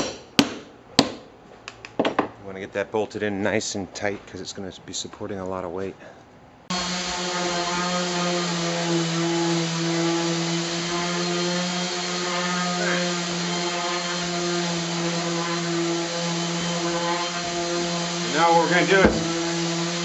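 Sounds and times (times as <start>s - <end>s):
electric motor humming: 6.7s - 20.0s.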